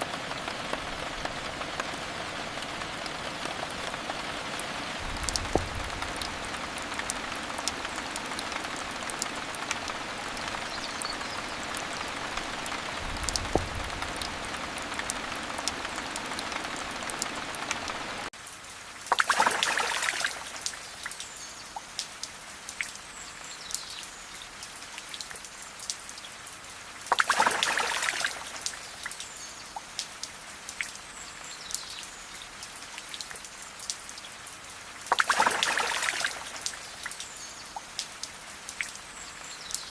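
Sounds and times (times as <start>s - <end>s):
steady rain hissing: 0.0s - 39.9s
sharp drip ticks: 19.1s - 23.0s, 23.6s - 31.0s, 31.6s - 39.0s.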